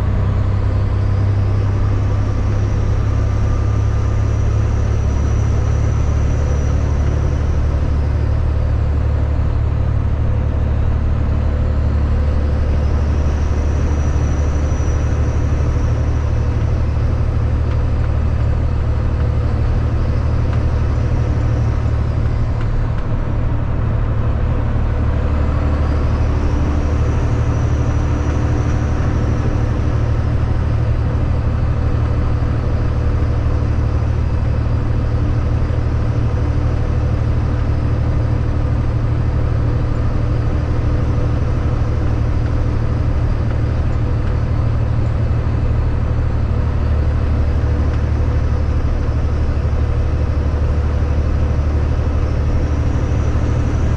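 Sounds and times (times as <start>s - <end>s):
road and wind noise: 0.0s - 53.9s
truck diesel engine droning: 0.0s - 53.9s.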